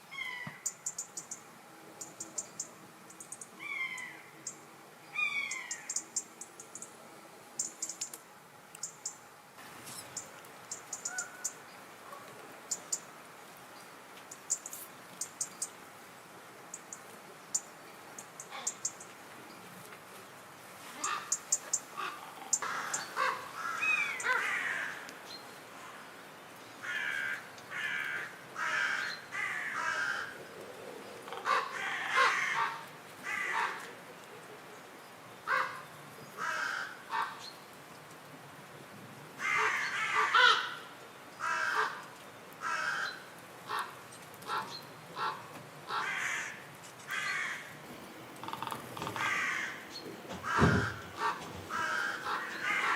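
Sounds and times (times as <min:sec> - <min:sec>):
harsh repeated bird calls: 0:02.0 - 0:06.9, 0:44.5 - 0:52.9.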